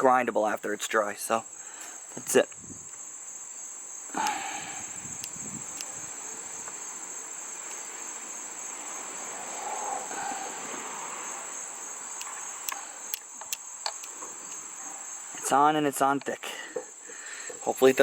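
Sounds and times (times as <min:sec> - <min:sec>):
insects chirring: 0:00.0 - 0:18.0
light clicks: 0:04.2 - 0:04.4, 0:05.1 - 0:06.8, 0:12.1 - 0:14.7.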